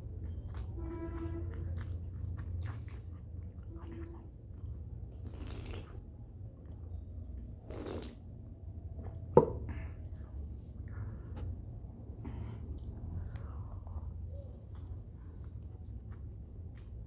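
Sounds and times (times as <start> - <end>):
chewing food: 0.0 - 17.0
short mouth noises: 5.2 - 6.0, 7.6 - 8.2.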